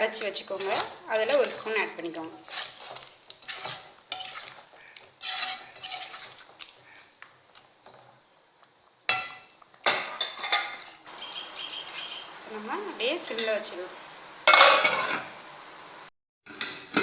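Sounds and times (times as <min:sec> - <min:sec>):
spoon stirring in a pot: 0:00.1 - 0:11.1.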